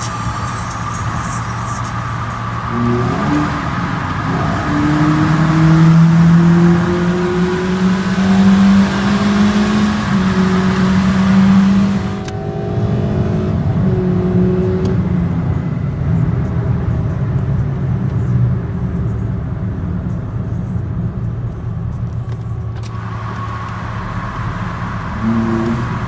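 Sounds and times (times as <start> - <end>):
car engine accelerating: 0.0 - 16.5, 22.7 - 26.0.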